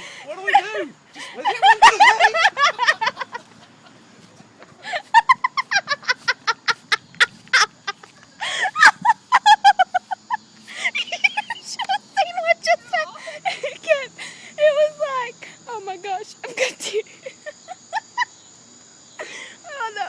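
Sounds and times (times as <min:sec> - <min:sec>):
hysterical cackling laughter: 0:01.3 - 0:04.2, 0:04.8 - 0:12.2, 0:16.5 - 0:18.4.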